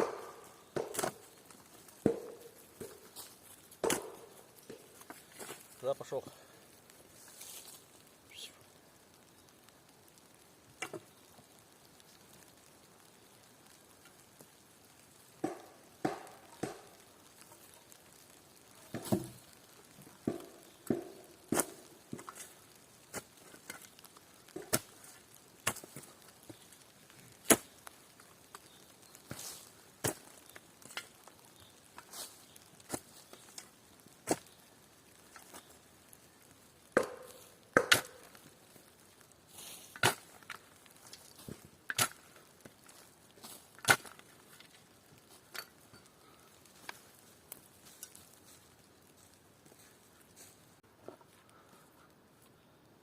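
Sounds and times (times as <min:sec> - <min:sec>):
loud tool strikes on wood: 0:15.4 - 0:16.9.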